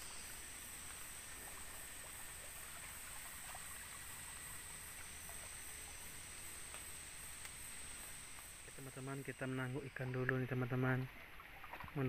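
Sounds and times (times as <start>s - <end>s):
high-pitched insect drone: 0.0s - 12.0s
tiny ticks: 6.7s - 7.6s.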